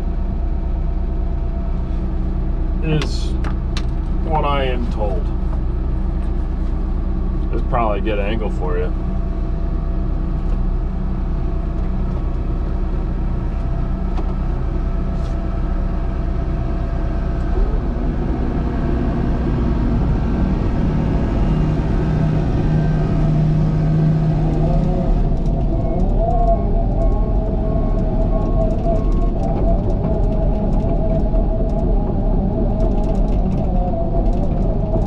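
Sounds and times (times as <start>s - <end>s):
earthmoving machine diesel engine: 0.0s - 35.0s
wavering higher tone: 11.4s - 35.0s.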